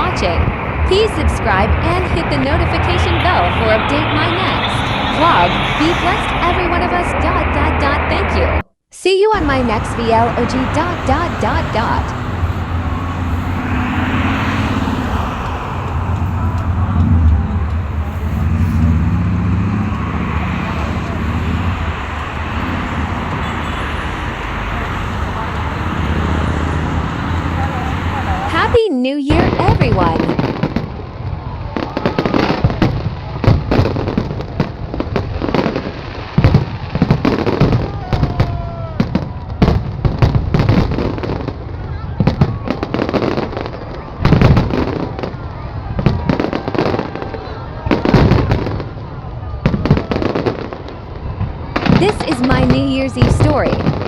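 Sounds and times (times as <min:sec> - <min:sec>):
city traffic rumble: 0:00.0 - 0:08.7, 0:09.3 - 0:54.0
fireworks bangs and pops: 0:09.4 - 0:26.4, 0:29.3 - 0:54.0.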